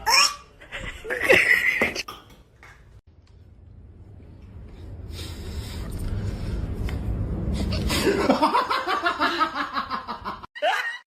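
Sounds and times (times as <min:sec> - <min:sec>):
low rumbling noise: 0:03.3 - 0:08.5
person laughing hard: 0:07.9 - 0:11.0.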